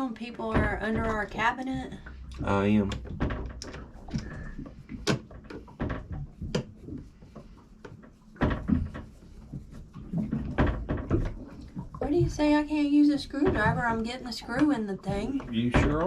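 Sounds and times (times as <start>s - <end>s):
clicks and knocks of cabinet door: 2.7s - 6.8s, 8.4s - 9.3s, 10.1s - 12.6s, 13.2s - 16.0s.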